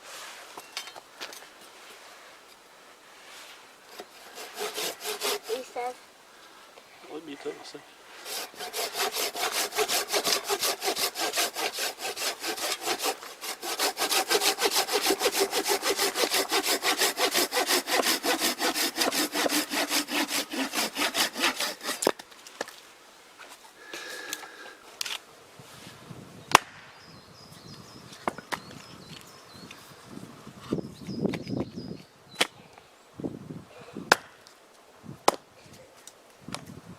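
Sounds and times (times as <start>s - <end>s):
hand saw cutting wood: 3.9s - 5.9s, 8.2s - 22.2s.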